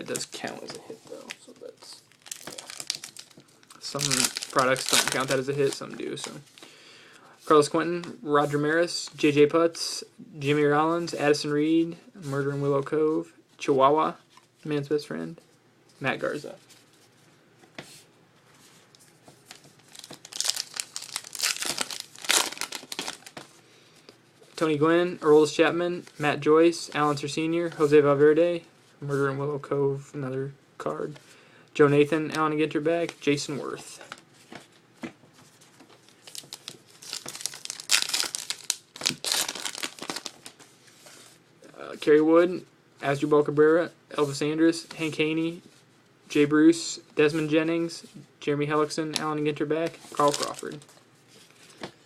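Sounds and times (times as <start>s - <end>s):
wrapper tearing and crinkling: 0.5s - 6.4s, 19.5s - 23.4s, 36.1s - 40.6s, 50.1s - 50.9s.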